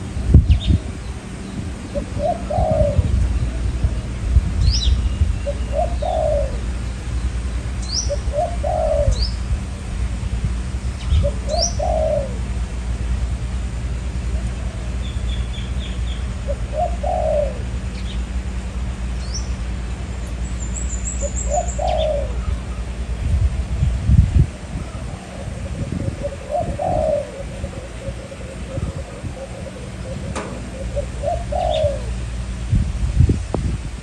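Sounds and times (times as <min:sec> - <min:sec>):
small birds chirping: 0:00.0 - 0:09.9, 0:10.7 - 0:12.4, 0:14.3 - 0:23.2, 0:24.6 - 0:32.5
wind rumble on microphone: 0:00.0 - 0:34.0
doves cooing: 0:00.2 - 0:04.2, 0:05.4 - 0:09.4, 0:11.2 - 0:12.6, 0:14.2 - 0:19.0, 0:21.2 - 0:23.2, 0:24.5 - 0:32.6.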